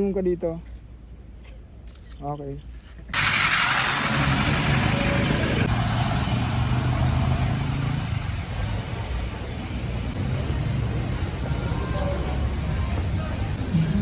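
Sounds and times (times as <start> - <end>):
loud rushing noise: 3.2 - 11.7
atv engine running: 3.2 - 13.6.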